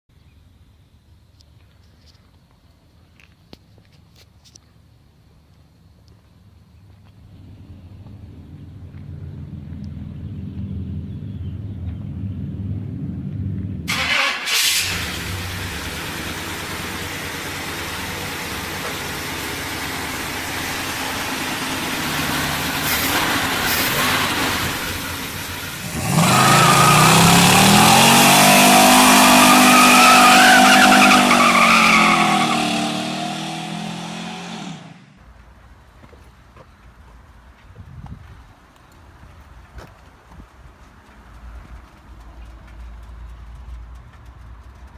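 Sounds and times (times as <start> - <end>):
car engine revving: 7.3 - 35.2.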